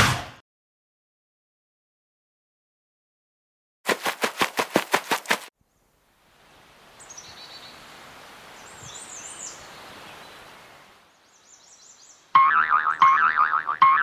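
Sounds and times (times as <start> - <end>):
small birds chirping: 7.0 - 12.3
wobbling boing sound effect: 12.4 - 14.0.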